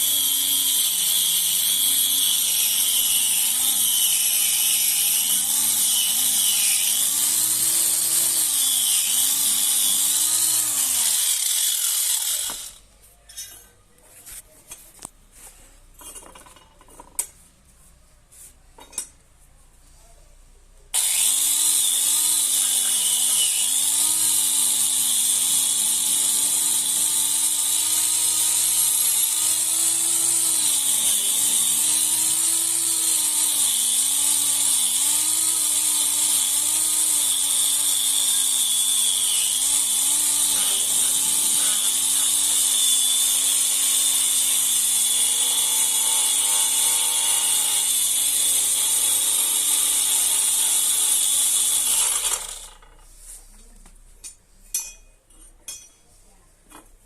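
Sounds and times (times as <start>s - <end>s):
electric grinder on metal: 0.0s - 12.8s, 21.0s - 53.0s.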